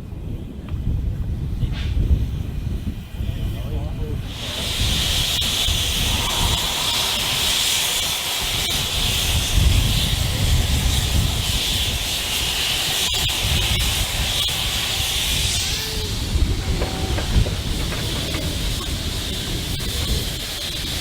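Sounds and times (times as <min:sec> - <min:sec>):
steam locomotive hissing steam: 0:01.0 - 0:21.0
low rumble: 0:16.0 - 0:20.0.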